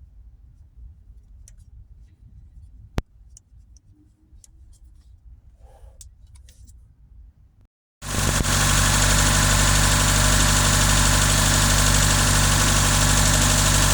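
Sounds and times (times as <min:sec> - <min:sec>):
car engine idling: 0:08.0 - 0:13.9.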